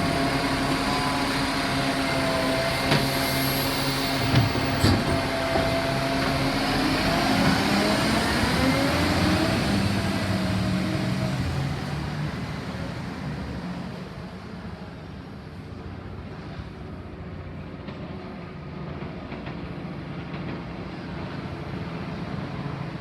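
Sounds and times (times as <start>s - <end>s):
garbage truck engine and hydraulics: 0.0s - 12.6s.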